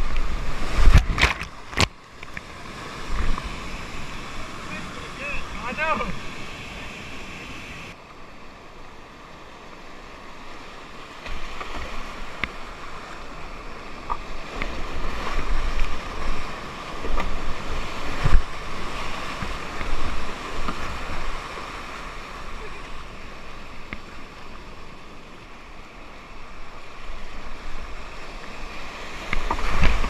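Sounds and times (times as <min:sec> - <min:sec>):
river rapids rushing: 0:02.5 - 0:08.0.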